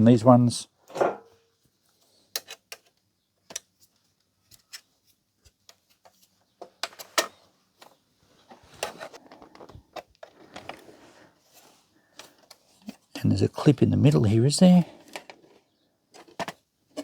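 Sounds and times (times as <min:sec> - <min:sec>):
plastic parts clicking and knocking: 0:02.3 - 0:10.9, 0:14.8 - 0:17.0.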